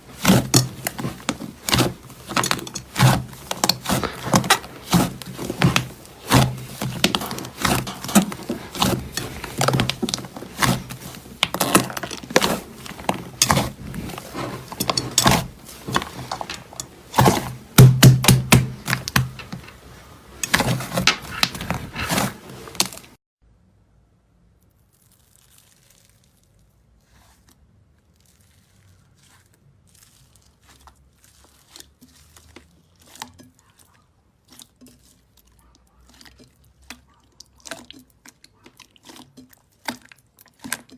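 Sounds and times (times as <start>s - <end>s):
slime crackling and popping: 24.7s - 26.7s.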